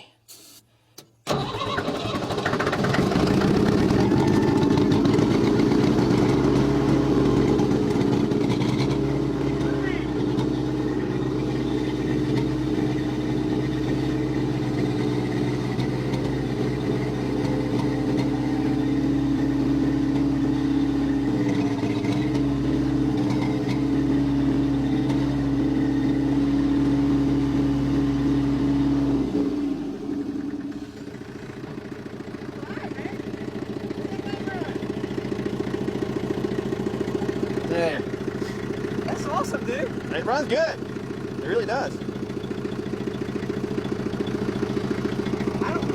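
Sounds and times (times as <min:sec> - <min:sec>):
tractor engine running: 0:00.3 - 0:45.9.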